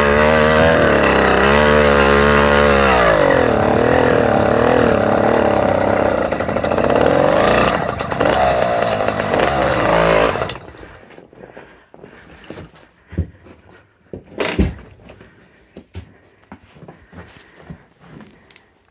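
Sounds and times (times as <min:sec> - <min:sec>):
small petrol engine running: 0:00.0 - 0:11.1.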